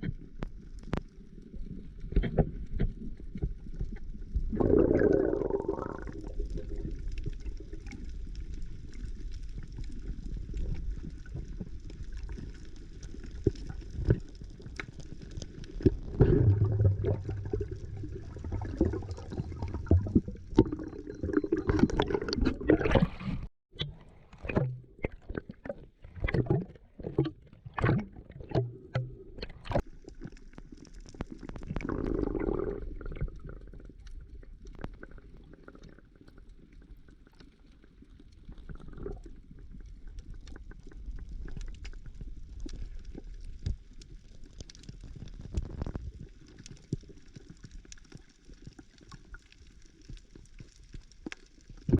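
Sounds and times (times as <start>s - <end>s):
muffled water sloshing: 15.8s - 29.9s.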